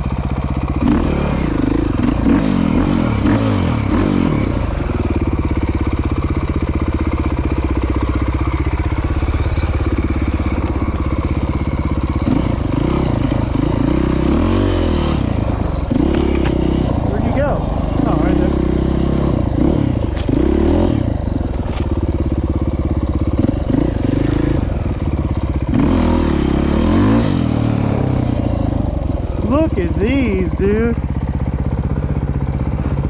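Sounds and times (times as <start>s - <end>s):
dirt bike engine revving: 12.2s - 28.4s.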